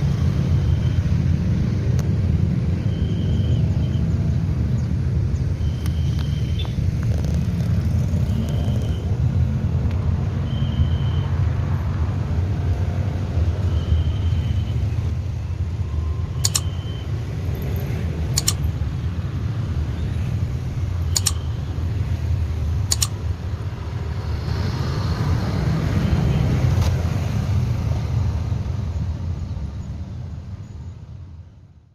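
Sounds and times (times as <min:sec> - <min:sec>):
traffic rumbling over level crossing: 0:00.0 - 0:31.7
sharp clicks: 0:16.4 - 0:16.8, 0:18.3 - 0:18.7, 0:21.1 - 0:21.6, 0:22.8 - 0:23.3.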